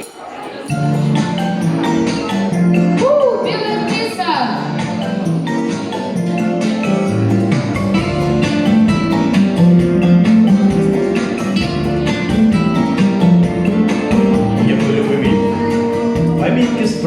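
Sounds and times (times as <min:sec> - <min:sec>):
guitar music: 0:00.7 - 0:17.0.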